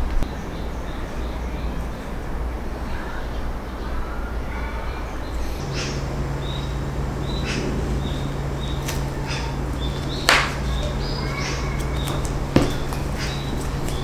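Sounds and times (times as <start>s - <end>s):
small birds chirping: 0.0s - 14.0s
steady low hum: 0.0s - 14.0s
sharp tap: 10.3s - 10.7s.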